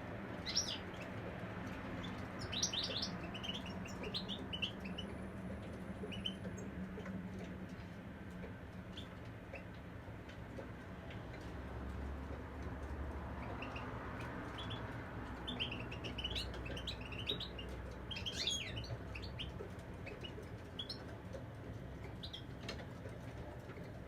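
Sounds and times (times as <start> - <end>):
bird twittering song: 0.4 - 1.1, 2.0 - 5.2, 15.4 - 21.1.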